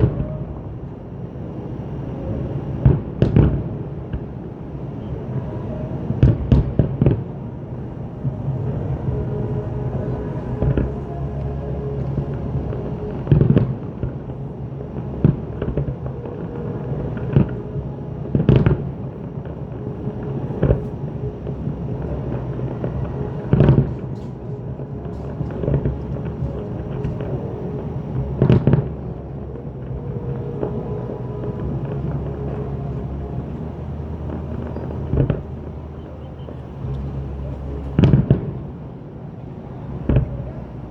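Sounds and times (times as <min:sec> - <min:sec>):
low background rumble: 0:00.0 - 0:40.9
fireworks booming: 0:01.6 - 0:38.8.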